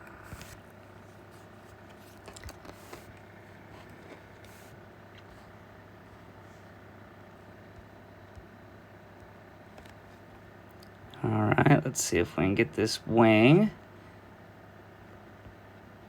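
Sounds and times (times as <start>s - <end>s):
faint scratching of drawing: 0.0s - 5.6s
low electrical hum: 0.0s - 16.0s.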